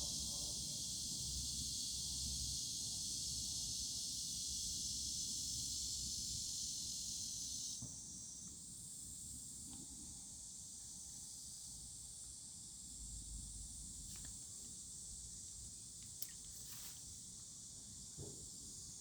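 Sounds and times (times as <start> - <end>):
high-pitched hiss: 0.0 - 7.8, 13.4 - 19.0.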